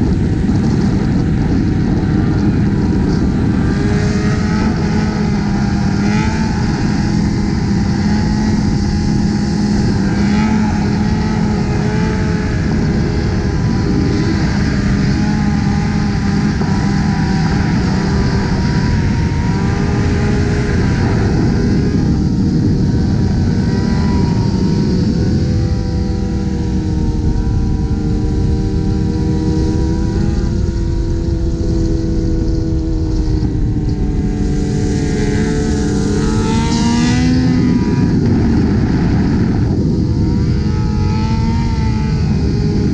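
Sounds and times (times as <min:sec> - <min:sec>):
motorcycle engines at speed: 0:00.0 - 0:42.9
steady rush of noise: 0:00.0 - 0:42.9.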